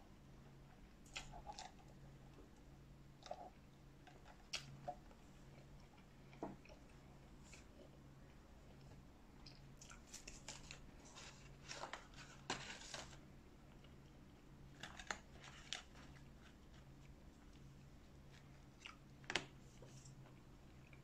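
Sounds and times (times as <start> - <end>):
chewing fast food: 3.2 - 12.3, 13.6 - 19.2.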